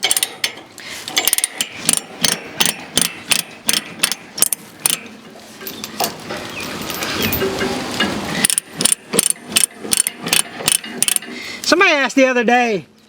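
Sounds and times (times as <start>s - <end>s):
ratchet chain binder clicking: 0.0s - 5.1s, 8.4s - 11.4s.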